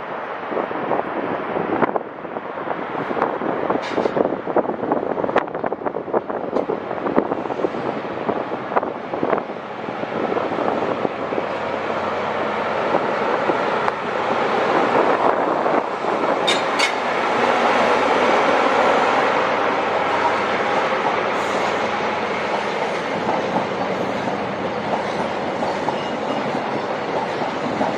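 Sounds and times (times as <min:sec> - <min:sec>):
train running noise: 0:00.0 - 0:27.9
train wheels clicking over rail joints: 0:11.0 - 0:27.9.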